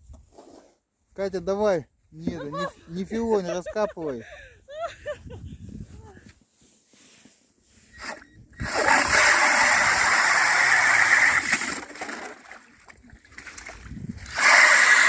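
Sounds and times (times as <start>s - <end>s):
slush and water splashing: 8.7s - 15.0s.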